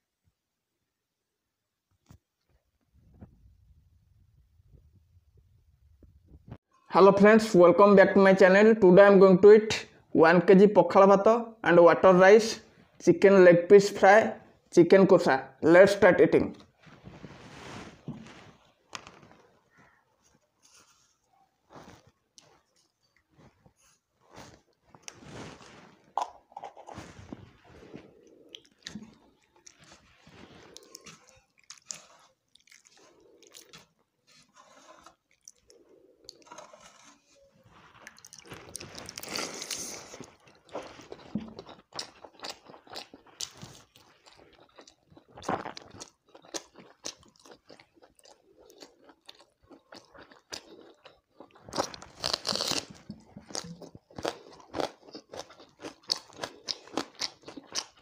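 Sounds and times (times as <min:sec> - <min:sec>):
wet chewing with crunchy clicks: 0:21.3 - 0:23.8, 0:28.1 - 0:34.2, 0:35.0 - 0:36.9, 0:37.9 - 0:58.0.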